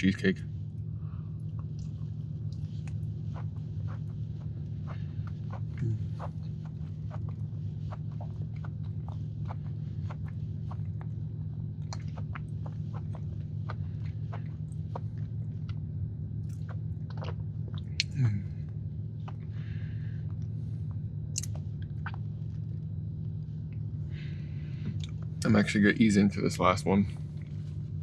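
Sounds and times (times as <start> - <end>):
steady low hum: 0.0 - 28.0
chewing with wet mouth clicks: 1.4 - 19.6, 21.2 - 23.9, 24.8 - 25.6.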